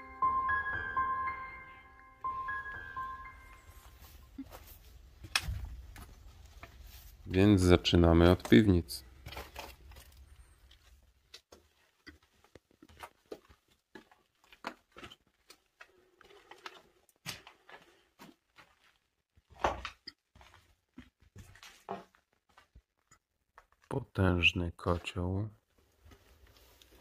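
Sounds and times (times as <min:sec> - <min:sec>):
footsteps on gritty stone floor: 0:03.7 - 0:23.9.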